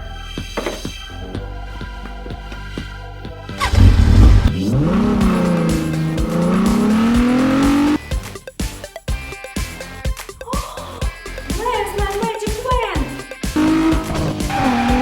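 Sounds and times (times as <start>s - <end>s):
background music: 0.0s - 15.0s
car engine revving: 3.6s - 8.0s, 13.4s - 15.0s.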